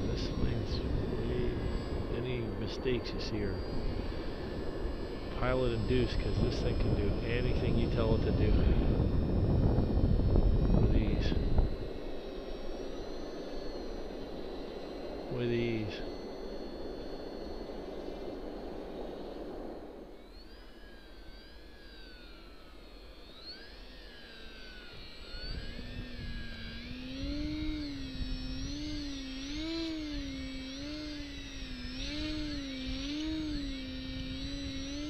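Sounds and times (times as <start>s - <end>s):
wind rumble on microphone: 0.0s - 12.9s, 24.8s - 35.0s
rc plane motor whining: 0.0s - 35.0s.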